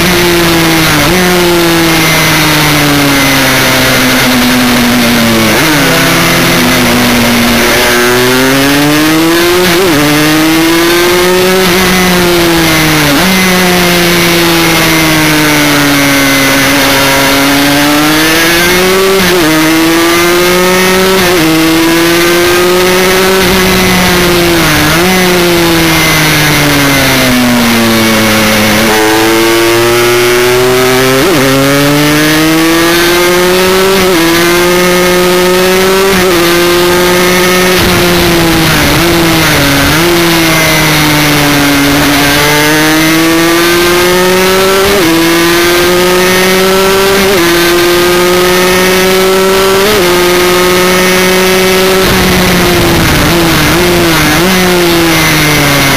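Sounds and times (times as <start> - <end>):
motorcycle engine revving: 0.0 - 55.9
wind rush on microphone: 51.9 - 54.6.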